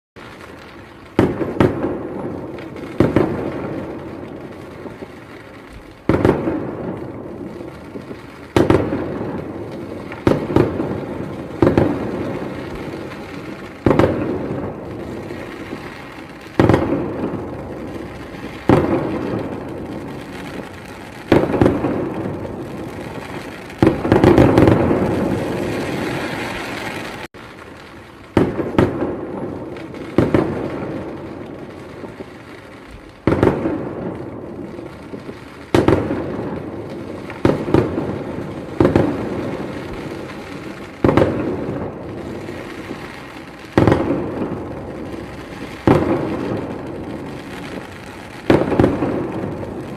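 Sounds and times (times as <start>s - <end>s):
firework shells bursting: 1.1s - 27.7s.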